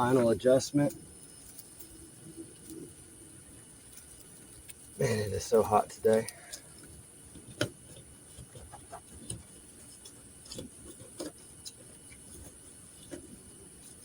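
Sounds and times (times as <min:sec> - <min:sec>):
faint high hiss: 0:00.0 - 0:07.2.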